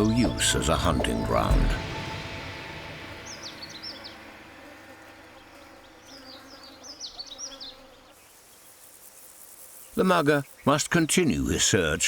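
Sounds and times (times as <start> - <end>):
low musical note: 0.0 - 5.4
bird chirping: 0.0 - 8.8.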